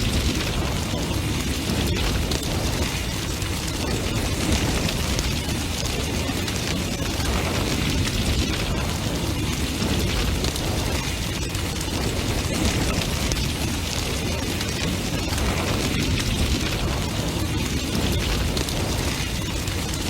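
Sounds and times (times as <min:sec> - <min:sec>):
bonfire flames rushing: 0:00.0 - 0:20.0
fire crackling and popping: 0:00.0 - 0:20.0.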